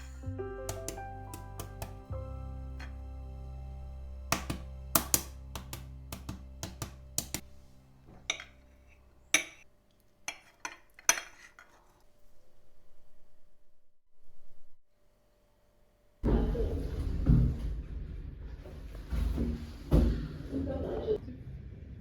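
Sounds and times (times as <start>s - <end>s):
background music: 0.0s - 9.6s
dishes and cutlery clinking: 8.1s - 9.7s, 10.3s - 12.0s.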